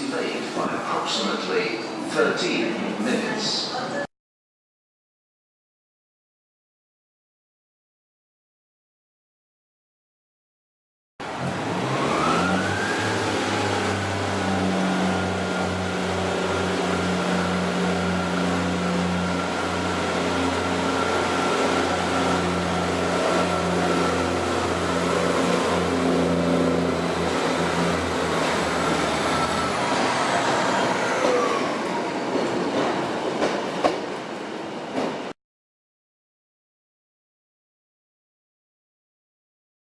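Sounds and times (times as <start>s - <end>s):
train engine hum: 11.2s - 35.3s.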